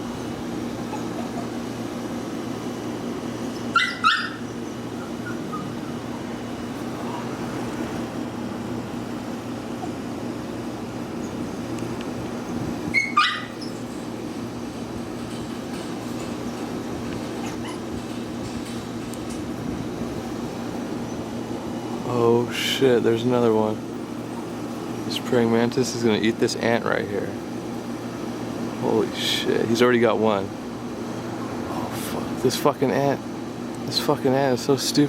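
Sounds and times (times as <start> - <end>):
dog barking: 3.7 - 4.4, 13.0 - 13.6
low hum: 4.4 - 13.0.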